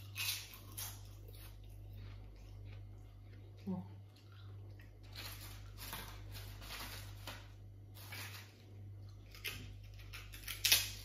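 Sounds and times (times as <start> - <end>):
crunching and chewing: 0.0 - 11.0
steady low hum: 0.0 - 11.0.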